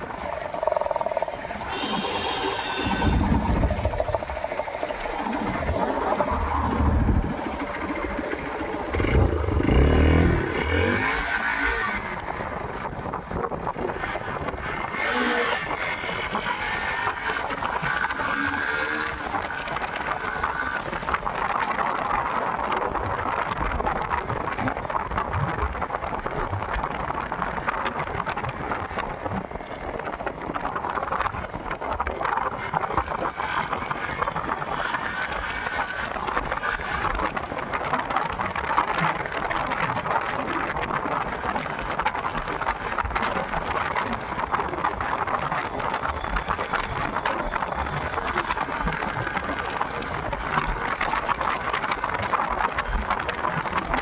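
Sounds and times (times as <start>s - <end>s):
motorcycle road and wind noise: 0.0s - 54.0s
low rumble: 3.0s - 10.6s.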